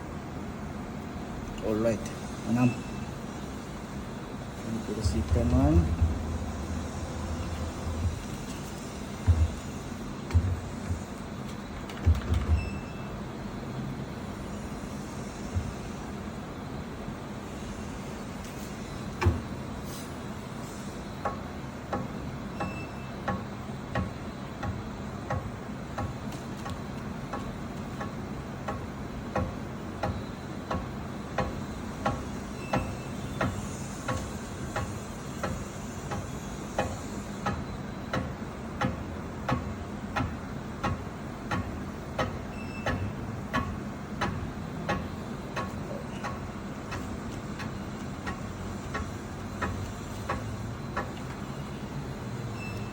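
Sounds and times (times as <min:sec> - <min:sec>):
machine tool motor hum: 0:03.3 - 0:12.0.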